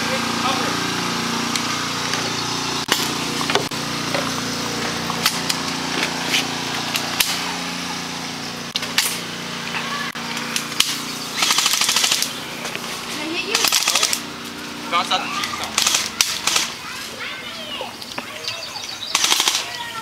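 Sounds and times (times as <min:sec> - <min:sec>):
low mechanical hum: 0:00.0 - 0:20.0
airsoft gun shots: 0:10.8 - 0:12.4, 0:13.6 - 0:14.2, 0:15.8 - 0:16.8, 0:19.1 - 0:19.7.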